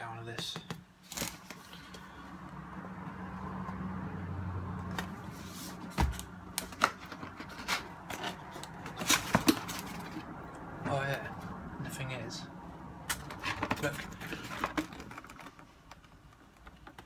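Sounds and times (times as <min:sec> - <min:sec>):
sharp clicks and knocks: 0:13.1 - 0:17.0.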